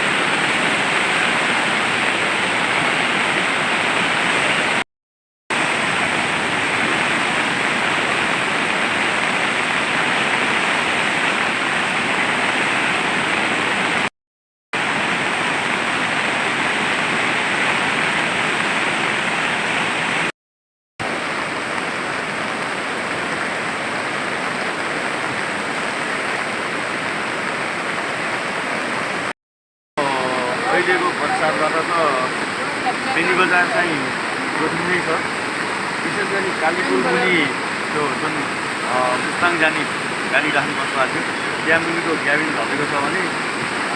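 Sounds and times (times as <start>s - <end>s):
flooded river rushing: 0.0s - 4.8s, 5.5s - 14.1s, 14.8s - 20.3s, 21.0s - 29.3s, 30.0s - 43.9s.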